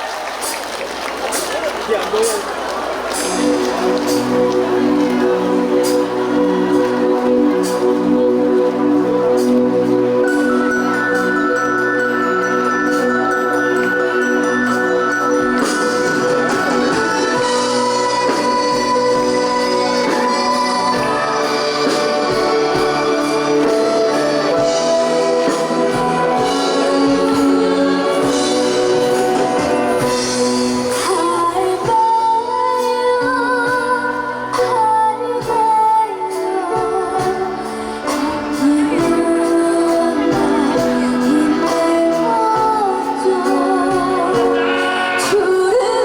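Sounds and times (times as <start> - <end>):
instrumental backing track: 1.3 - 46.0
girl singing: 30.9 - 44.6, 45.2 - 46.0.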